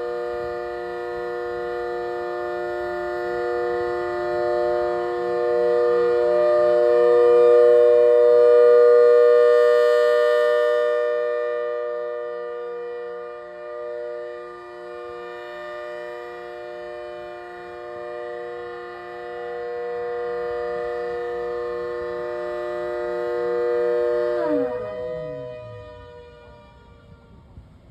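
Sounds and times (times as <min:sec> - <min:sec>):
siren multi-tone chord: 0:00.0 - 0:27.9.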